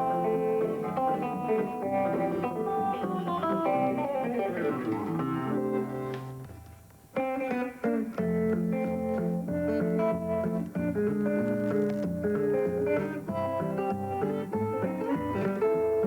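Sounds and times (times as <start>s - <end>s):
thumbpicked guitar: 0.0s - 16.0s.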